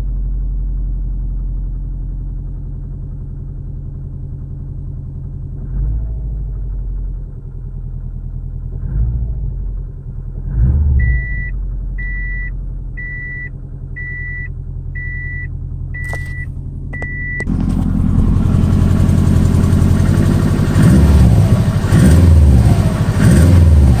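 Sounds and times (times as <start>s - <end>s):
car engine idling and revving: 0.0s - 24.0s
short beeps: 11.0s - 17.5s.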